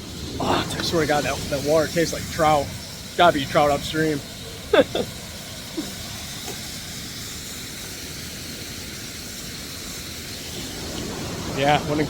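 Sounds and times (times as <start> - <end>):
waterfall rushing: 0.0 - 6.8, 10.5 - 12.0.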